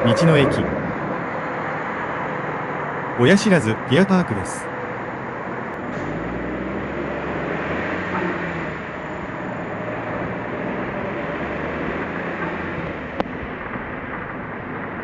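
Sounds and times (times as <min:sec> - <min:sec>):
tyre and road noise: 0:04.6 - 0:15.0.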